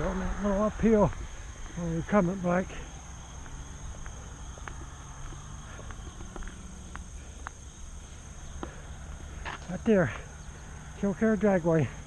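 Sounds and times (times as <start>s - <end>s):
crickets trilling: 0.0s - 12.0s
faint ticks: 3.4s - 7.6s.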